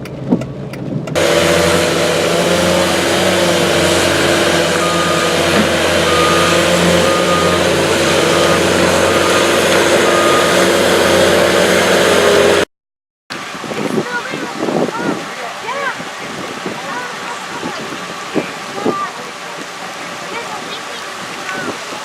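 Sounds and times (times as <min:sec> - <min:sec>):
vehicle road and engine hum: 0:00.0 - 0:12.7, 0:13.3 - 0:22.0
short faint beep: 0:06.0 - 0:10.6.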